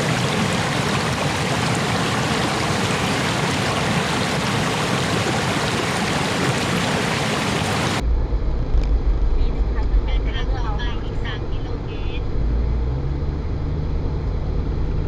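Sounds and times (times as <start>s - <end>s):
water rushing: 0.0s - 8.0s
deep low rumble: 8.0s - 15.0s.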